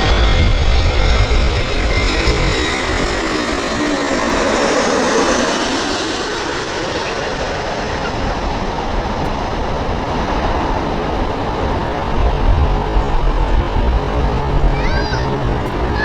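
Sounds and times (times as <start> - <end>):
jet airliner roar: 0.0 - 16.0.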